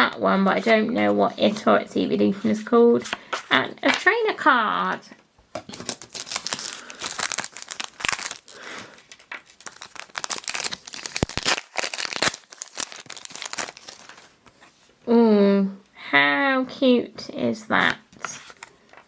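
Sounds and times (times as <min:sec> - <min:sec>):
cards rustling: 0:05.5 - 0:14.8
foil wrapper crinkling and tearing: 0:05.7 - 0:14.4.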